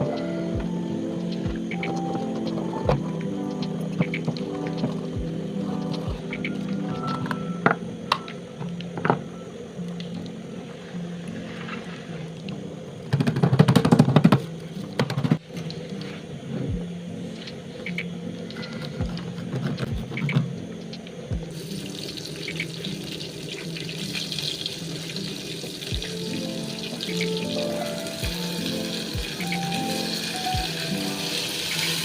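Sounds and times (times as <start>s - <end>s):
soft background music: 0.0s - 32.0s
hiss of running water: 21.5s - 32.0s
water running and splashing: 21.5s - 32.0s.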